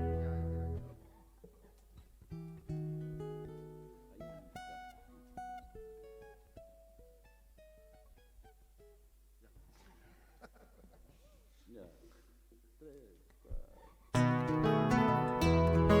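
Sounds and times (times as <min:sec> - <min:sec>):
acoustic guitar plucked: 0:00.0 - 0:01.7, 0:02.3 - 0:09.0, 0:14.1 - 0:16.0.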